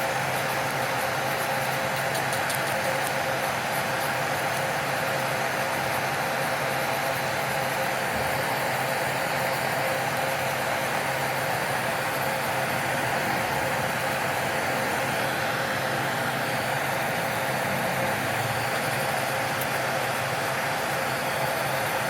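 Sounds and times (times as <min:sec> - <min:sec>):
hiss of nail filing: 0:00.0 - 0:08.6
electric nail drill whining: 0:09.4 - 0:22.0.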